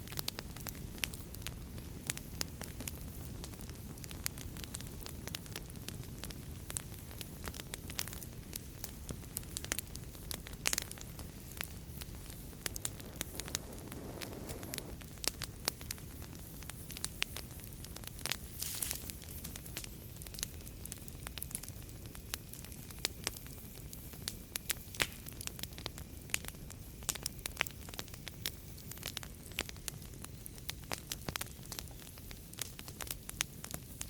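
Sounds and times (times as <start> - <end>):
fire hiss: 0.0 - 34.0
fireplace fire crackling: 0.0 - 34.0.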